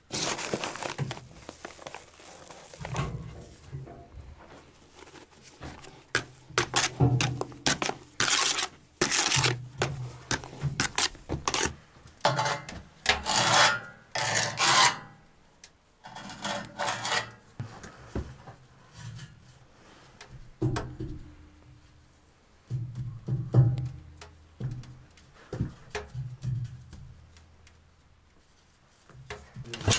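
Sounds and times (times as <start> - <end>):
rubbing and scraping strokes: 4.5 - 11.8.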